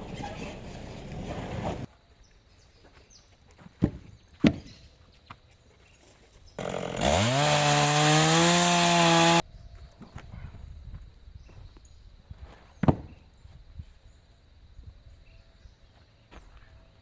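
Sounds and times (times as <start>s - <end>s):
chainsaw revving: 6.6s - 9.4s.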